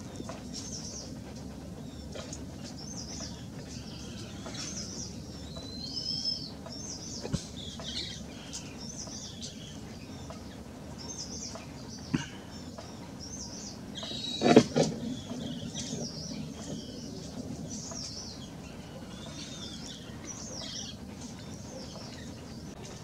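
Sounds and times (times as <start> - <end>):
birds chirping and twittering: 0.0 - 23.0
low background hum: 0.0 - 23.0.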